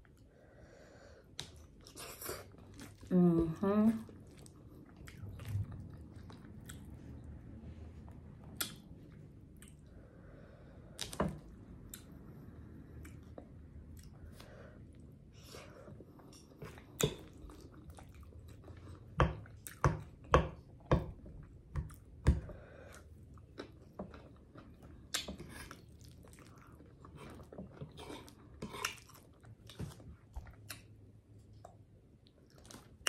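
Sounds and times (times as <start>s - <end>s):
chewing and mouth smacking: 4.0s - 7.4s, 8.1s - 9.9s, 11.0s - 14.4s, 16.0s - 20.2s, 22.9s - 33.0s.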